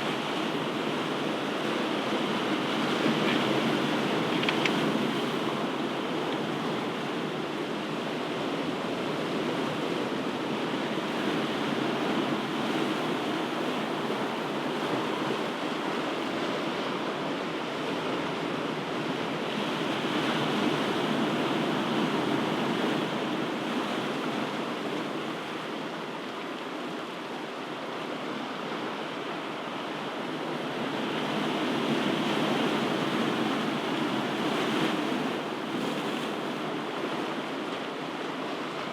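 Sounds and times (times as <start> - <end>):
waves breaking: 0.0 - 7.4.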